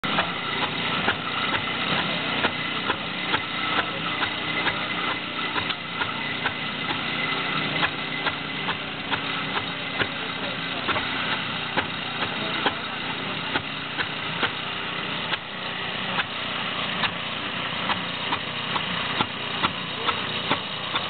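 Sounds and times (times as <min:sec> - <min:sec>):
tractor engine running with knock: 0:00.0 - 0:21.0.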